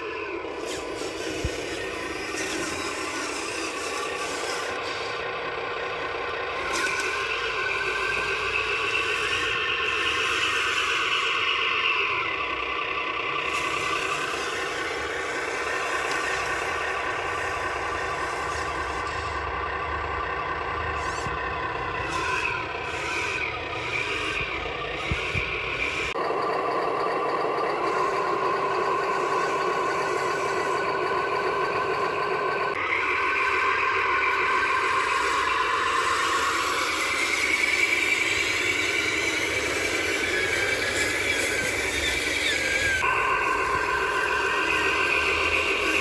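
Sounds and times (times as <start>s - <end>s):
truck engine running: 0.0s - 46.0s.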